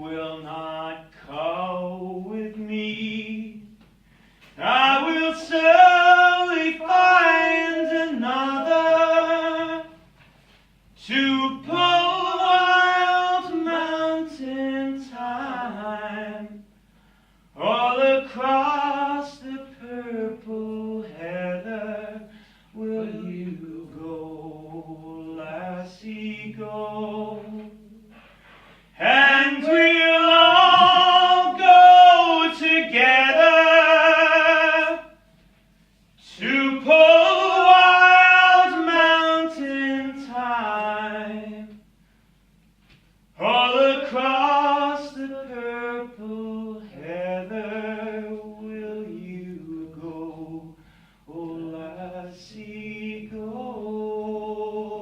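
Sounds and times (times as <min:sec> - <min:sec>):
breaths: 0:03.9 - 0:04.6, 0:16.8 - 0:17.6, 0:22.2 - 0:22.8, 0:28.1 - 0:29.0, 0:42.0 - 0:42.6, 0:50.7 - 0:51.3
person singing unaccompanied: 0:22.8 - 0:28.1, 0:29.0 - 0:35.1, 0:36.2 - 0:41.8.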